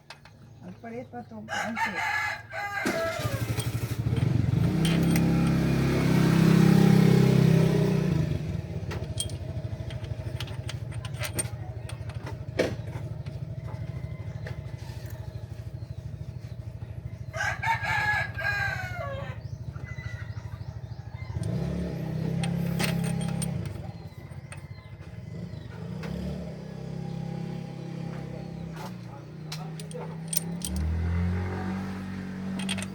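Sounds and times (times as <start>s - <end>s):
rooster crowing: 1.5s - 3.6s, 13.5s - 15.5s, 17.2s - 21.9s.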